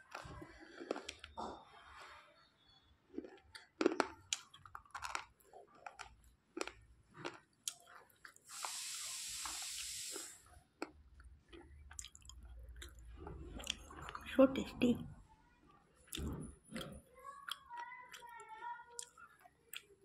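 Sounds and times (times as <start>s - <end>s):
crunching and chewing: 0.0s - 2.0s, 3.0s - 10.2s, 10.8s - 14.2s, 16.1s - 20.0s
steady hiss: 8.5s - 10.4s.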